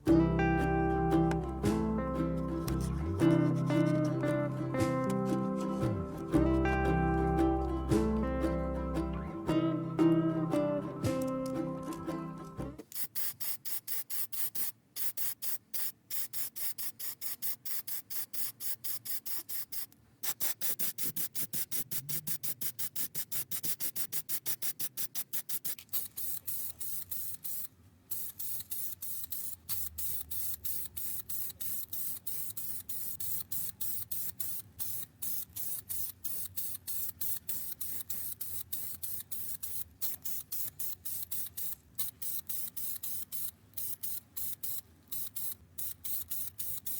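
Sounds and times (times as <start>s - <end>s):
spray paint hissing bursts: 12.8s - 46.9s.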